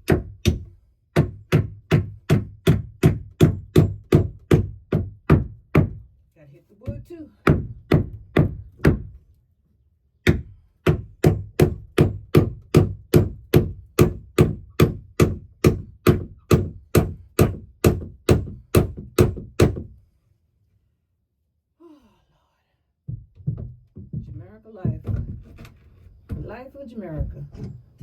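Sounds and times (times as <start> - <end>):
hammer striking nail into wood: 0.0 - 6.0, 7.4 - 9.2, 10.2 - 19.9.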